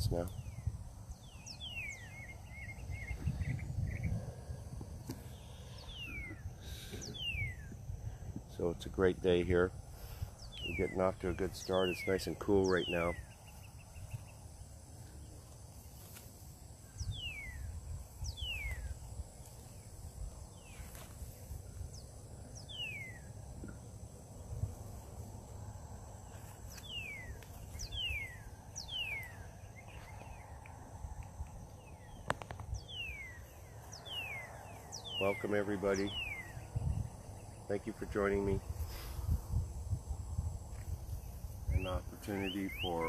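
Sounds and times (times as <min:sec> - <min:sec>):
bird whistling downward notes: 0:05.4 - 0:07.8, 0:41.7 - 0:43.0
steady low rumble: 0:13.0 - 0:42.8.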